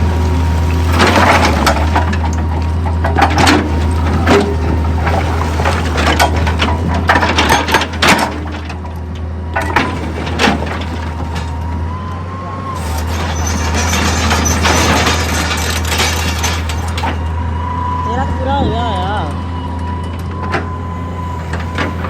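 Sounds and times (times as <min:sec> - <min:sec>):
heavy machine engine running: 0:00.0 - 0:22.0.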